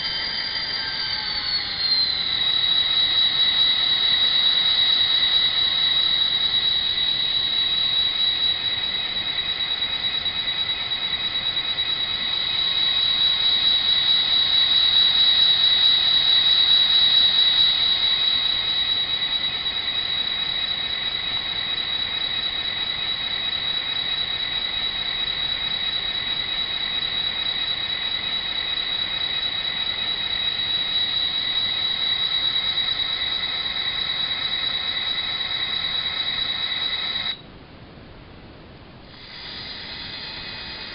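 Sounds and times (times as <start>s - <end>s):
model diesel engine sound with whine: 0.0s - 37.4s, 38.5s - 40.9s.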